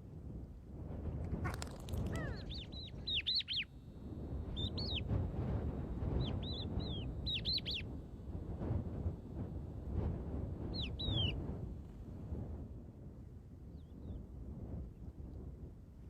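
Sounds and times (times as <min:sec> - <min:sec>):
low background rumble: 0:00.0 - 0:16.0
bird chirping: 0:01.5 - 0:03.7, 0:04.5 - 0:05.1, 0:06.1 - 0:07.9, 0:10.7 - 0:11.4.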